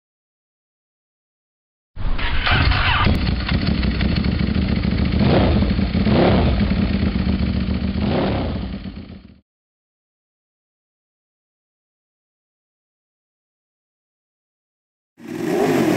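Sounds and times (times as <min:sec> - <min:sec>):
motorcycle engine idling and revving: 0:02.1 - 0:09.4, 0:15.2 - 0:15.9.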